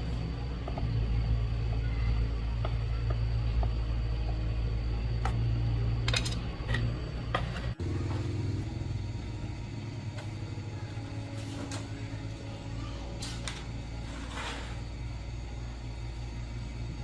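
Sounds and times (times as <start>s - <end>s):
motorcycle engine idling: 7.4s - 12.7s.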